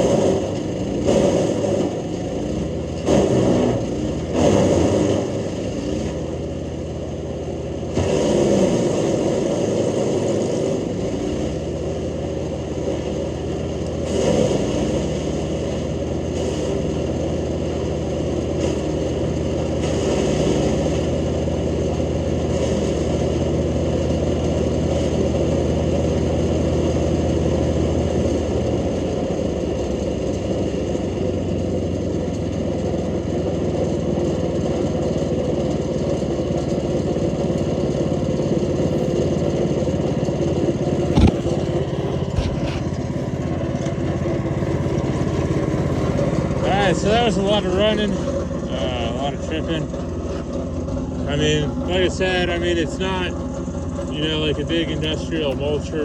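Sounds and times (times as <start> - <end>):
wood chipper engine running: 0.0 - 56.0
branches crunching in chipper: 37.2 - 49.6.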